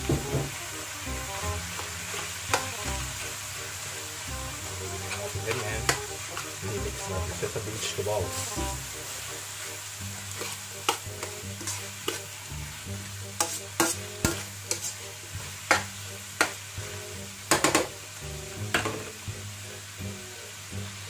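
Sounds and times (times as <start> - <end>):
food sizzling: 0.0 - 21.0
metal spatula scraping wok: 1.3 - 17.9.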